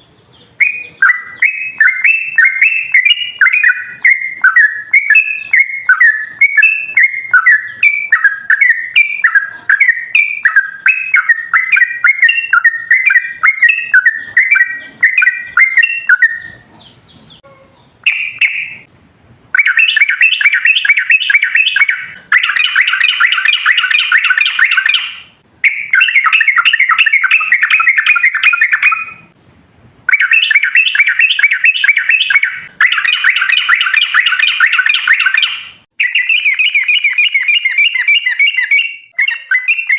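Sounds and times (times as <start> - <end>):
bird rapid chattering song: 0.0 - 18.9, 19.5 - 29.4, 30.1 - 39.9
bird singing bubbling notes: 0.6 - 16.6.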